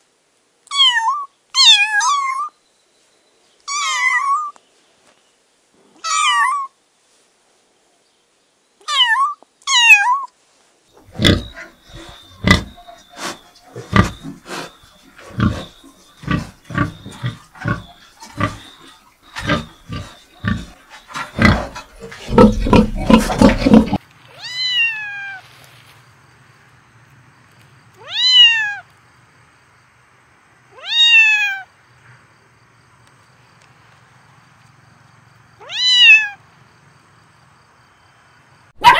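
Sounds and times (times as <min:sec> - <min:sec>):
kitten meowing: 0:08.8 - 0:10.3, 0:24.4 - 0:25.4, 0:28.0 - 0:28.8, 0:30.8 - 0:31.6, 0:35.6 - 0:36.4
pig grunting: 0:11.0 - 0:24.0.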